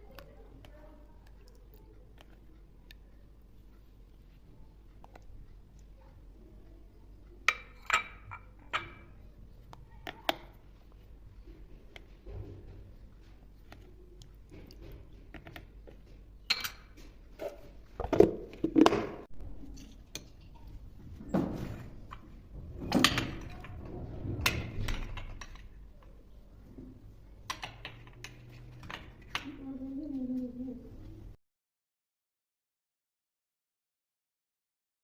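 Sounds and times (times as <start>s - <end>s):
kitchen containers and utensils clattering: 7.5s - 9.2s, 14.5s - 25.9s.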